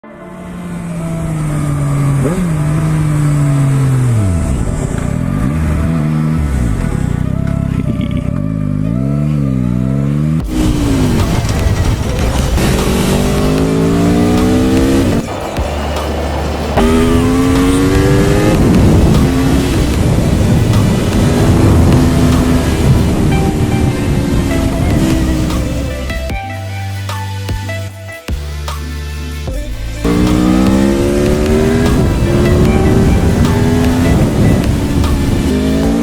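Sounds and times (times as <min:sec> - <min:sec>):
motorcycle engine revving: 0:00.0 - 0:26.4, 0:29.5 - 0:36.0.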